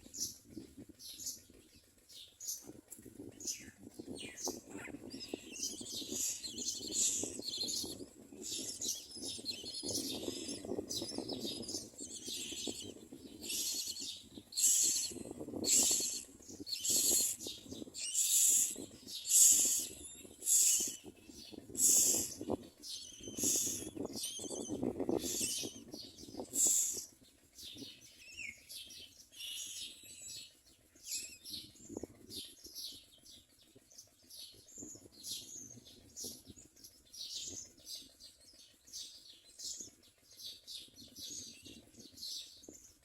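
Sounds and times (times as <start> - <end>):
nestlings harsh begging calls: 3.4 - 27.1, 28.2 - 31.7.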